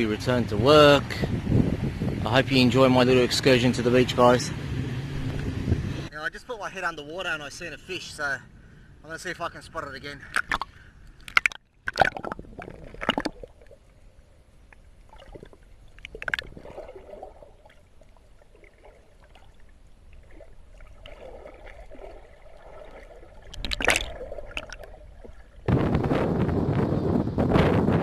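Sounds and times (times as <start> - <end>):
wind noise rushing: 0.5 - 3.5, 4.2 - 6.1, 25.7 - 28.0
underwater gurgling and sloshing: 10.3 - 26.5
water splashing swishes: 14.8 - 26.3.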